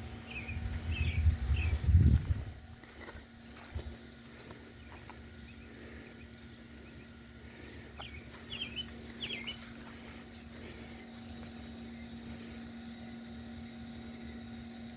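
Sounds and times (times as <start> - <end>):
faint steady hum: 0.0 - 14.9
bird chirps: 0.2 - 1.8, 8.0 - 10.0.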